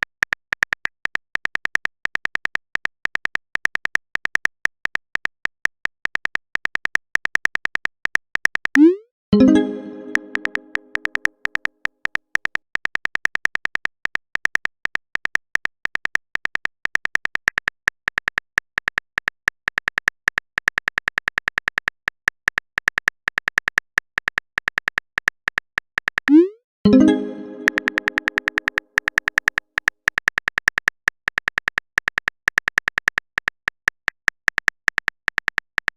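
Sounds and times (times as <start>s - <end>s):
typing tapping clicks: 0.0s - 9.0s, 9.7s - 35.9s
message alert chime: 8.8s - 11.1s, 26.3s - 28.7s.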